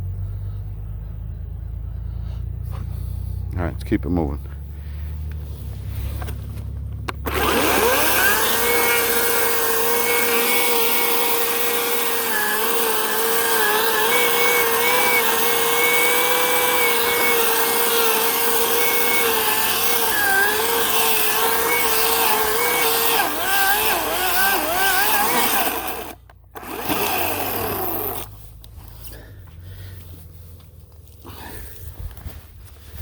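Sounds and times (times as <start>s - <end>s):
electric chainsaw cutting wood: 7.0s - 28.5s.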